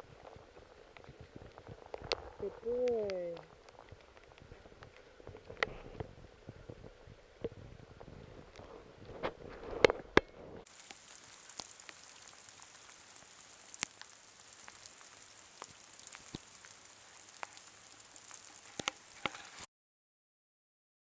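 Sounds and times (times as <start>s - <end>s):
single raindrops ticking: 0.0s - 8.7s, 9.8s - 19.7s
rain hissing: 0.0s - 19.7s.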